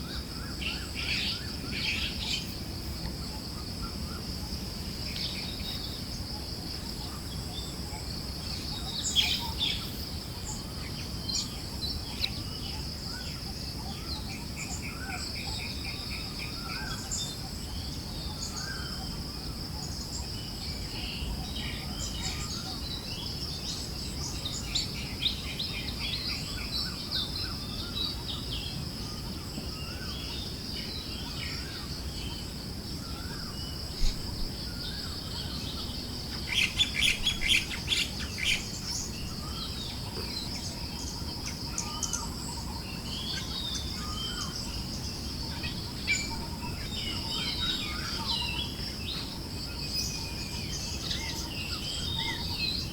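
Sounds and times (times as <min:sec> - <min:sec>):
high insect drone: 0:00.0 - 0:52.9
birds chirping: 0:21.8 - 0:52.9.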